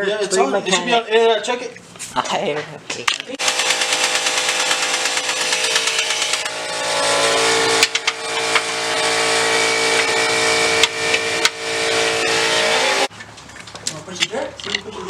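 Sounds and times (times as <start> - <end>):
power tool motor rattling: 3.4 - 13.1.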